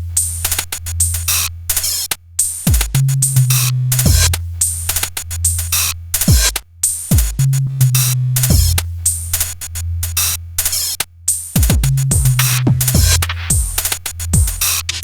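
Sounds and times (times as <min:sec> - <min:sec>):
deep kick drums: 0:02.7 - 0:04.4, 0:06.3 - 0:07.6, 0:08.5 - 0:08.8, 0:11.6 - 0:15.0
deep bass line: 0:02.7 - 0:06.5, 0:07.1 - 0:09.8, 0:11.6 - 0:15.0
electronic music: 0:11.6 - 0:15.0.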